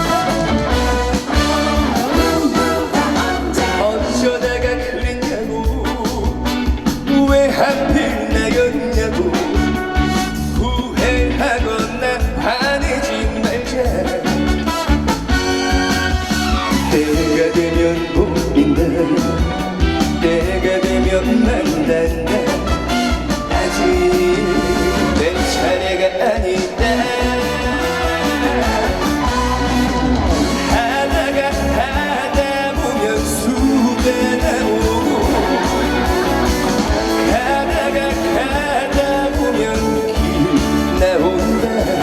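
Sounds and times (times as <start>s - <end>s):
upbeat trot music over sound system: 0.0s - 42.0s.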